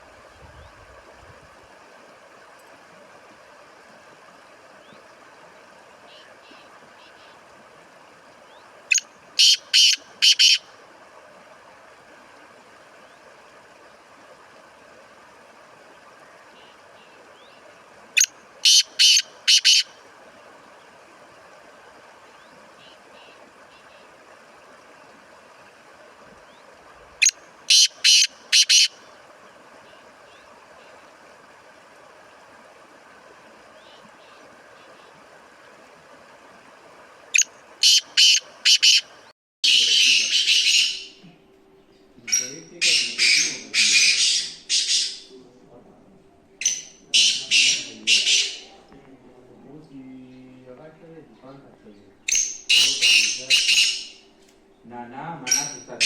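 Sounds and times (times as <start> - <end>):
faint background hiss: 0.0 - 56.0
distant bird chirps: 3.8 - 10.8, 12.1 - 56.0
bird calling harsh notes: 8.5 - 10.7, 18.2 - 20.1, 26.5 - 31.0, 37.3 - 41.2, 42.2 - 45.4, 46.6 - 48.8, 52.2 - 54.3.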